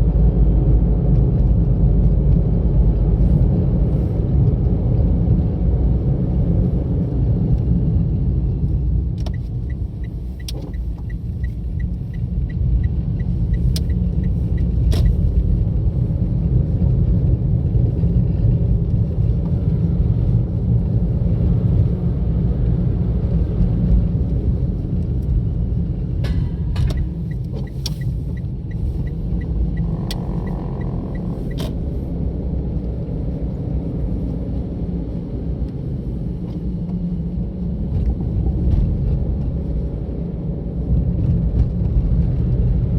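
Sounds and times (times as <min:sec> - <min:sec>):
road and engine noise inside car: 0:00.0 - 0:42.9.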